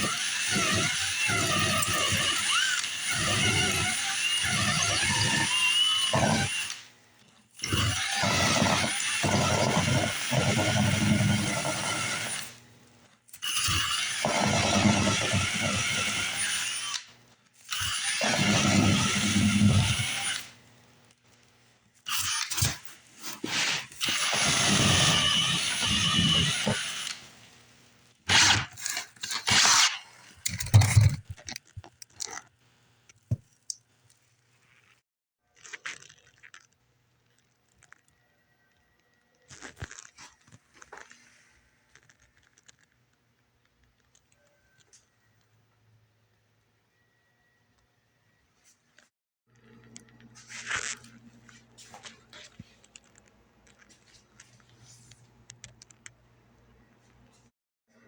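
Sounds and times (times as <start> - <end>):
power drill boring: 0.0 - 6.9, 7.6 - 12.6, 13.4 - 20.6, 22.1 - 22.8, 23.5 - 27.4.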